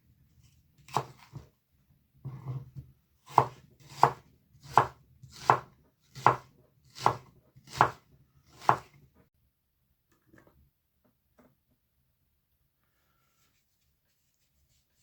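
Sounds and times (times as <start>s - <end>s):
knife chopping on cutting board: 0.8s - 1.5s, 2.2s - 9.0s.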